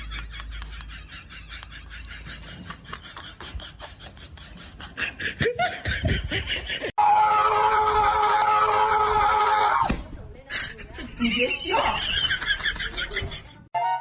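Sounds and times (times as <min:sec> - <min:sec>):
people laughing: 0:00.0 - 0:06.9, 0:10.4 - 0:13.7.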